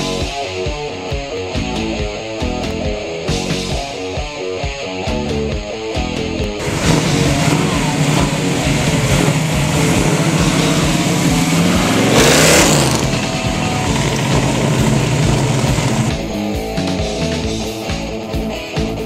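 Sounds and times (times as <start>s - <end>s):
car engine deep exhaust note: 6.6s - 16.2s.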